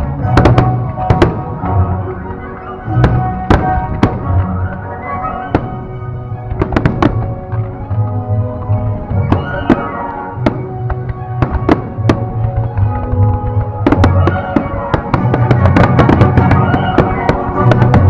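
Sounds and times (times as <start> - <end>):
fireworks bangs and crackles: 0.0 - 18.0
loud music: 8.2 - 18.0.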